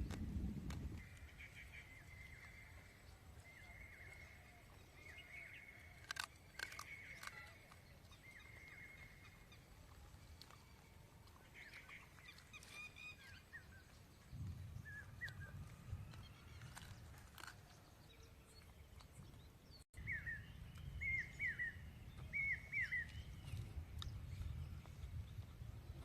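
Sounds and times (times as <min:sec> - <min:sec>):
sharp clicks: 0:06.0 - 0:07.8.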